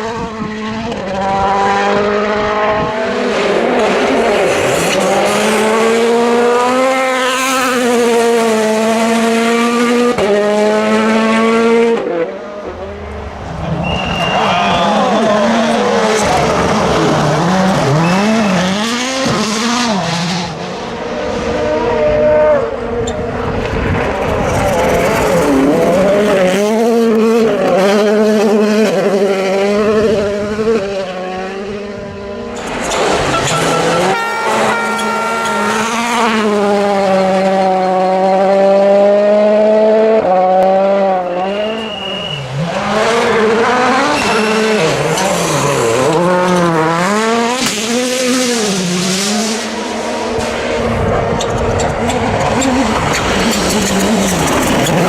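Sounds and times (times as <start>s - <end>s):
rally car engines revving: 0.0s - 55.0s
rush of noise: 11.6s - 18.8s, 20.3s - 27.5s.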